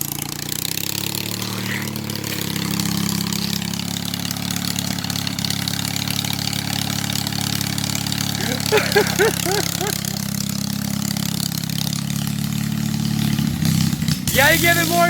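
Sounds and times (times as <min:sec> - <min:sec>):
small tractor engine running: 0:00.0 - 0:15.0.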